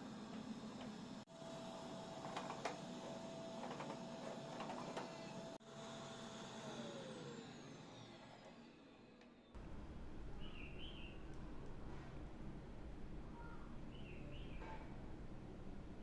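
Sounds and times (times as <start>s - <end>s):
small motor humming: 0.0s - 11.3s.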